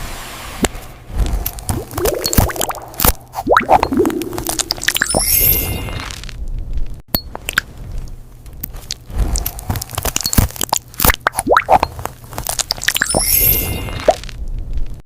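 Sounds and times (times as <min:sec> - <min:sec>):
wet crunching clicks and squelches: 0:01.4 - 0:05.2, 0:07.3 - 0:15.0
bright chime: 0:04.5 - 0:06.1, 0:13.0 - 0:14.1.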